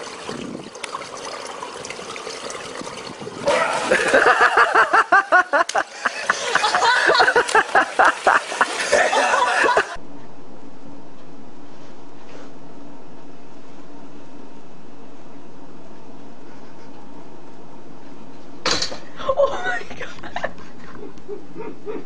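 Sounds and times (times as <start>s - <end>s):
pool water splashing: 0.0s - 10.0s
people laughing: 3.6s - 10.0s, 19.2s - 22.0s
steady low hum: 9.9s - 22.0s.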